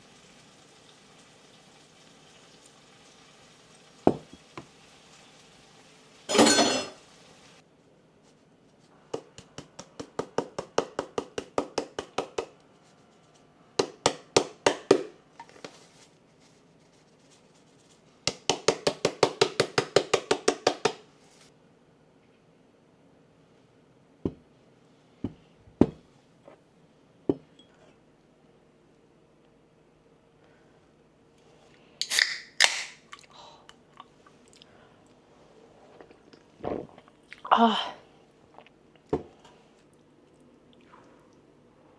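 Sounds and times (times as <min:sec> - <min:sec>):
soft chewing: 0:33.1 - 0:35.2, 0:38.4 - 0:41.5.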